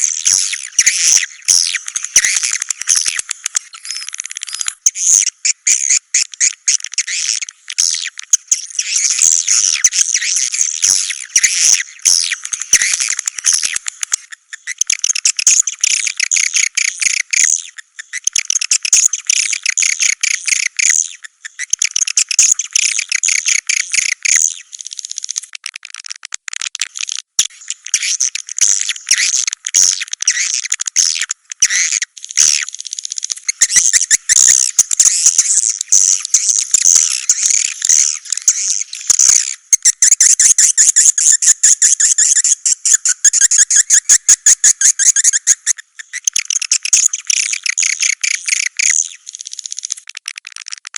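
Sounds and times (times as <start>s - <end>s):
swiftlet twittering chirps: 31.7s - 50.0s.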